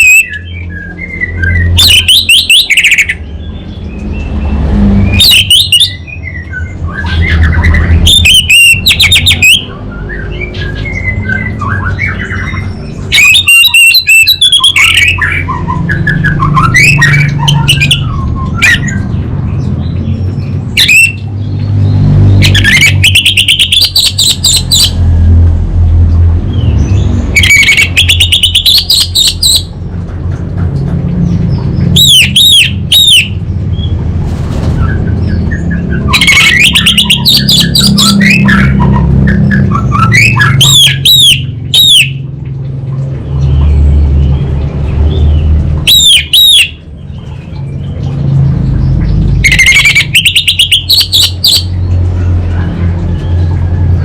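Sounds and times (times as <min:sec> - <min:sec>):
soft bird twittering: 0:00.0 - 0:25.1, 0:26.5 - 0:29.7
thrush singing buzzy trills: 0:00.0 - 0:30.0, 0:30.7 - 0:54.0.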